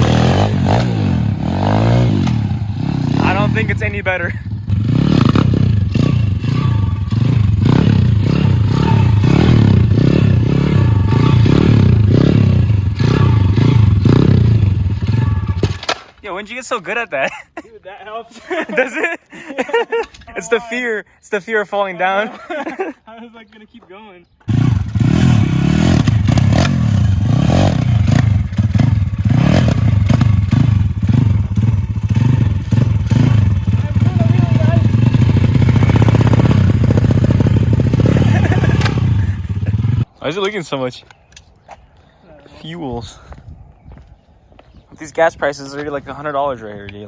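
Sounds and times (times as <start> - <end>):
pit bike engine revving: 0.0 - 15.8, 24.4 - 40.1.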